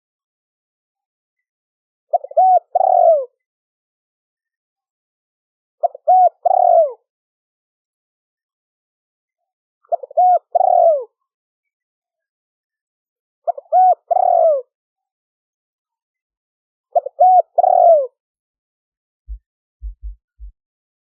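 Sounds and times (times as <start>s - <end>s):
dove cooing: 2.1s - 3.4s, 5.8s - 7.0s, 9.9s - 11.1s, 13.5s - 14.6s, 17.0s - 18.1s.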